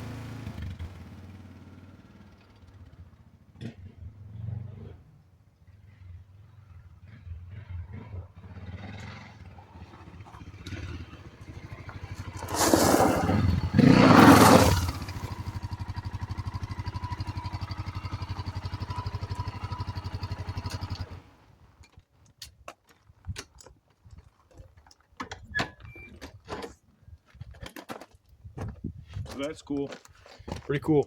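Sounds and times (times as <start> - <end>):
motorcycle engine revving and idling: 0.0 - 21.6.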